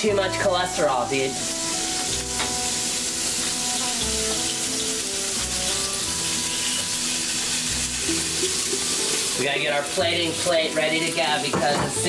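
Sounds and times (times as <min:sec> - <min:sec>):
egg and bacon sizzling in pans: 0:00.0 - 0:12.0.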